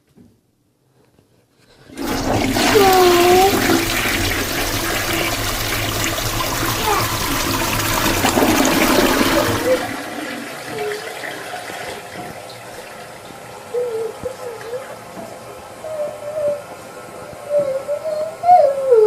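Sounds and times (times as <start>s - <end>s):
toilet flushing: 1.8s - 13.8s
water running: 1.9s - 15.5s.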